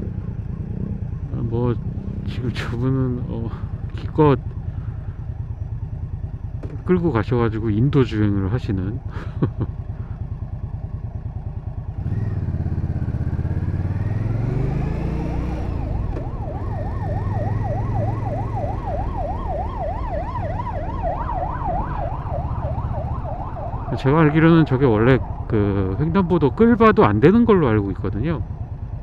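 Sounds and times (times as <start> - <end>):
motorcycle engine revving: 0.0 - 8.0, 9.0 - 29.0
siren yelping: 12.1 - 27.3.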